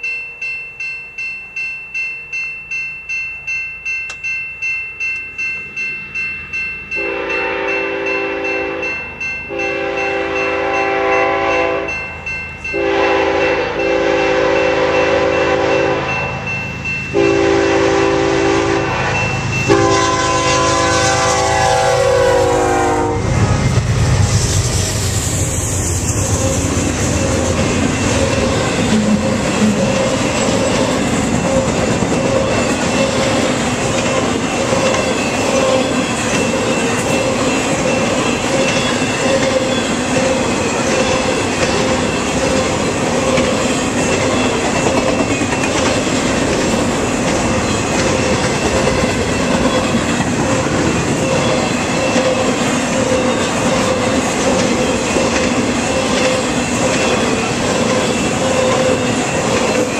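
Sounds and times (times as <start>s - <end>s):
railroad crossing bell ringing: 0.0s - 59.9s
freight train rumbling past: 2.3s - 59.9s
locomotive air horn blasts: 7.0s - 8.9s, 9.5s - 11.9s, 12.8s - 16.4s, 17.2s - 23.7s.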